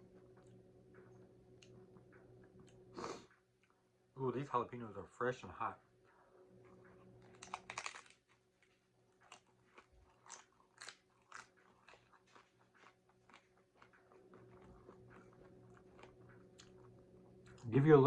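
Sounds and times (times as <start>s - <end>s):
crunchy chewing: 0.0s - 3.9s, 6.1s - 18.0s
crunchy taco bite crackling: 6.6s - 17.9s.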